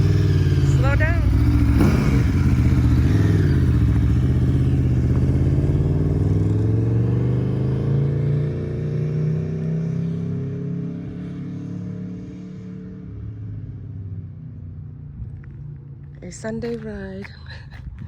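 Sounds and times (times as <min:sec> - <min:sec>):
motorcycle engine riding off: 0:00.0 - 0:09.1.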